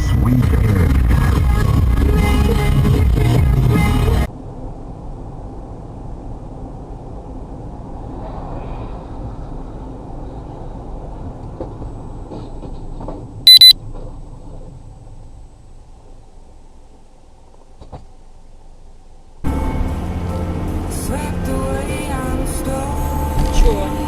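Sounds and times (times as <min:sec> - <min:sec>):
high-pitched electronic beep: 0:13.5 - 0:13.7
vehicle driving rumble: 0:19.4 - 0:24.0.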